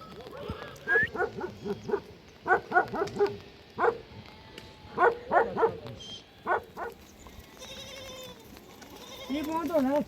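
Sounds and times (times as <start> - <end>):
dog barking: 1.2 - 4.0, 5.0 - 5.8, 6.5 - 7.0.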